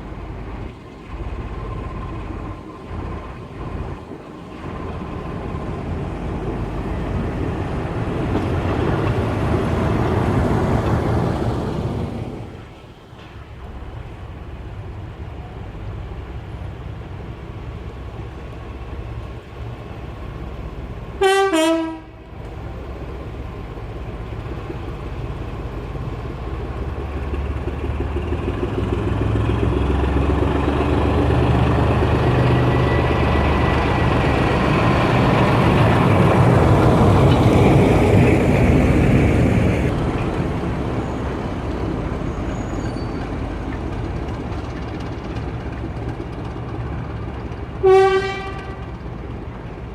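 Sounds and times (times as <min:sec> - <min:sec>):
train rumbling past: 0:00.0 - 0:49.9
two-note train horn: 0:21.2 - 0:22.3, 0:47.8 - 0:49.0.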